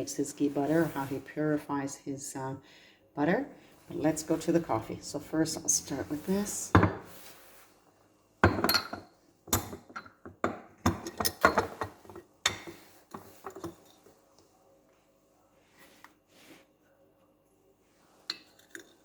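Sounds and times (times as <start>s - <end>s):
cups and espresso gear clinking: 8.4s - 14.1s.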